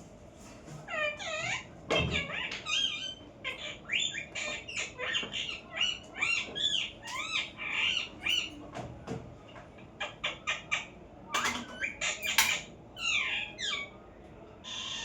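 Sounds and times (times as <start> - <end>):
parrot squawking and chirping: 0.9 - 8.6, 10.0 - 14.0.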